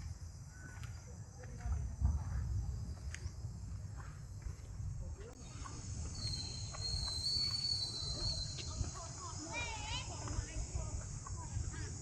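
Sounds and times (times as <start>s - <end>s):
insects buzzing: 5.2s - 12.0s
piercing insect whine: 5.4s - 12.0s.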